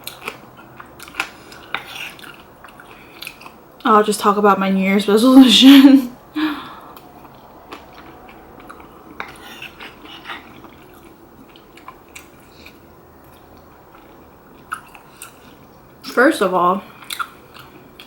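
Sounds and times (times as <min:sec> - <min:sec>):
person chewing food: 0:00.0 - 0:03.9, 0:06.7 - 0:16.0, 0:16.9 - 0:18.0.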